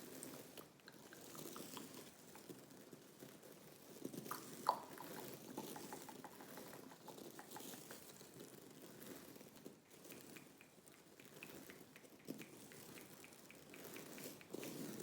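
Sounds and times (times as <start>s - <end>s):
gum chewing mouth sounds: 0.6s - 2.6s, 4.2s - 8.2s, 9.8s - 15.0s.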